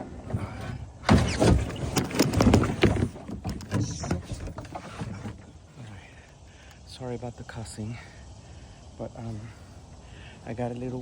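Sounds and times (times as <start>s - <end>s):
knocks and scrapes on kayak hull: 0.0s - 5.8s.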